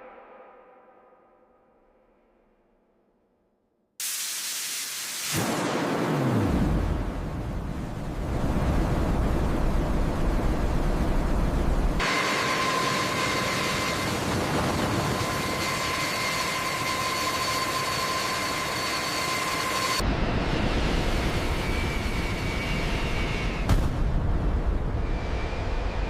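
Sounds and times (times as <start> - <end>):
loud rushing hiss: 4.0 - 6.2
low rumble: 6.4 - 12.0, 20.0 - 26.0
jet engines whining: 7.4 - 23.7.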